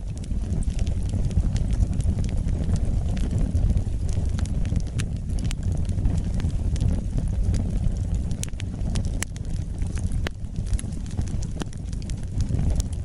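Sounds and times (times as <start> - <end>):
fire low rumble: 0.0 - 13.0
wood fire crackling and popping: 0.0 - 13.0.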